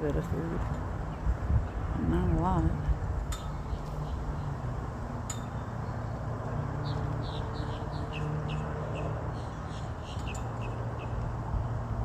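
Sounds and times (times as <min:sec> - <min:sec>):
small bird chirping: 0:06.8 - 0:11.2.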